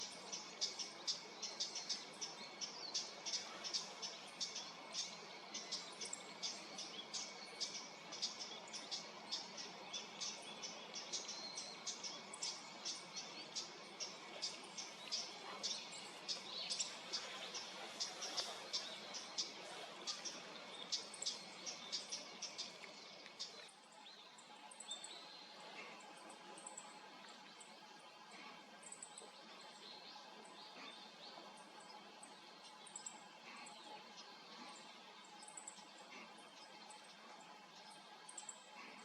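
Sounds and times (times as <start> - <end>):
steady background hiss: 0.0 - 39.0.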